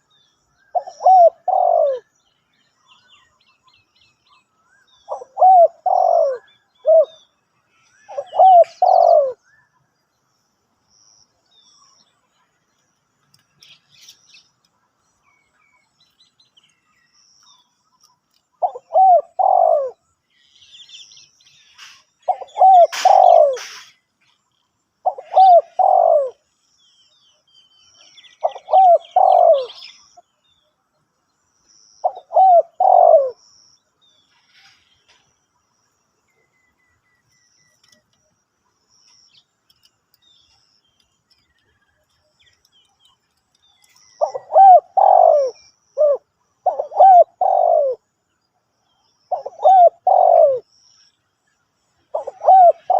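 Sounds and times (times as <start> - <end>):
small birds chirping: 0.0 - 52.9
dove cooing: 0.7 - 2.2, 5.1 - 7.2, 7.9 - 9.4, 18.6 - 20.0, 21.8 - 24.0, 25.0 - 26.4, 28.4 - 30.1, 32.0 - 33.4, 44.2 - 48.1, 49.3 - 50.7, 52.1 - 52.9.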